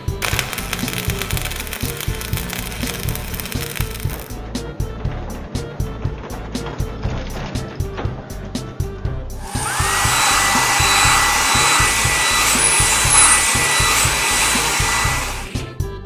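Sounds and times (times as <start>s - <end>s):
background music with steady beat: 0.0s - 16.0s
hissing blast with rising whine: 0.2s - 4.3s, 9.4s - 15.7s.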